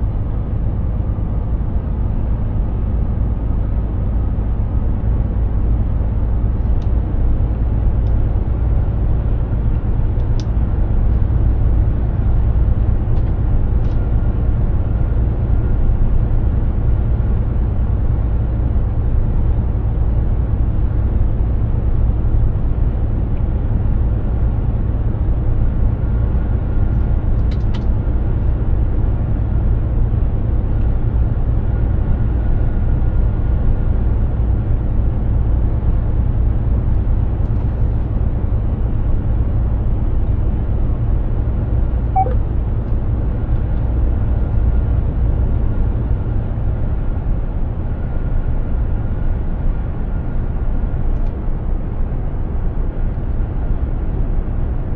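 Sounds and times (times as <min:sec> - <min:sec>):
truck engine and road noise: 0:00.0 - 0:54.9
faint short beep: 0:42.1 - 0:42.5.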